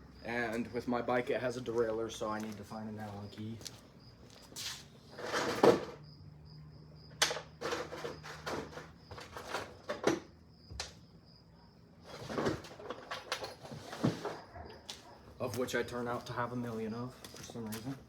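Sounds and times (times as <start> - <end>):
scraping rustle: 4.4 - 5.9, 12.0 - 15.1
metal tools clattering: 12.2 - 14.4.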